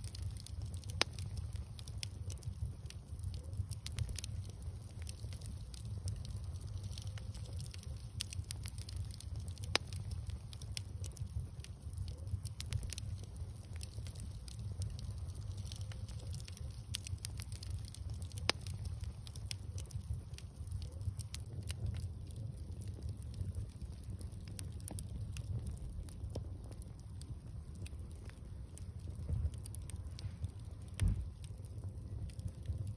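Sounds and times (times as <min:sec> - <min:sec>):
bonfire crackling and popping: 0:00.0 - 0:32.9
loud fire snaps: 0:00.0 - 0:32.9
low rumble: 0:22.9 - 0:32.9.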